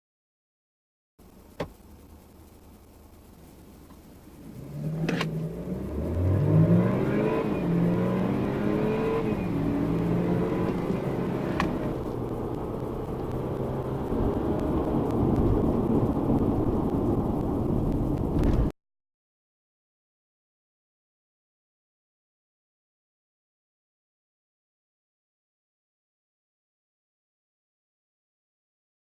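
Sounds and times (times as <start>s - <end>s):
car engine accelerating hard: 4.3s - 18.7s.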